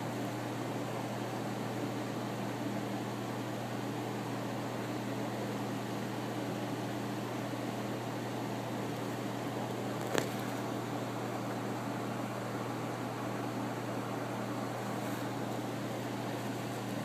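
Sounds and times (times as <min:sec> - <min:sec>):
steady machine hum with hiss: 0:00.0 - 0:17.0.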